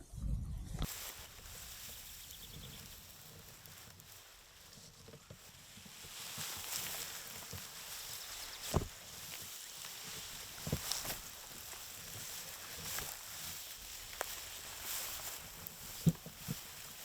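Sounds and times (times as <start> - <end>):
wind on microphone: 0.0 - 2.9
wind through vegetation: 0.0 - 17.0
soft rustles: 0.8 - 17.0.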